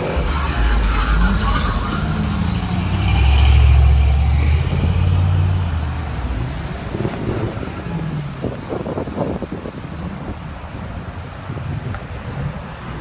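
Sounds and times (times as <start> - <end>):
vehicles driving past slowly: 0.0 - 13.0.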